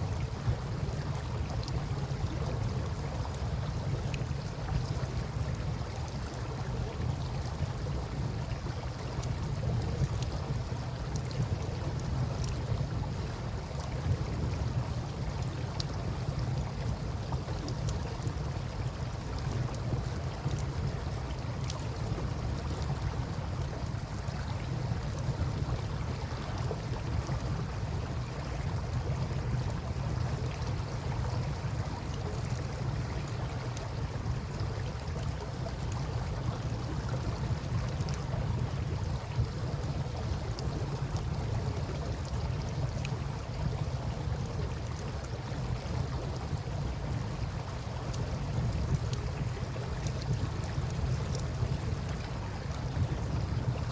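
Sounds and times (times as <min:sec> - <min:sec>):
campfire crackling and popping: 0:11.0 - 0:13.0, 0:48.0 - 0:53.4.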